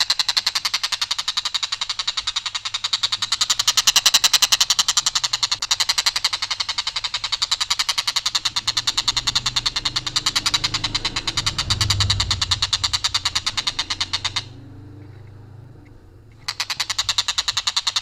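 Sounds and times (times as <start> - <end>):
faint low hum: 7.3 - 17.3.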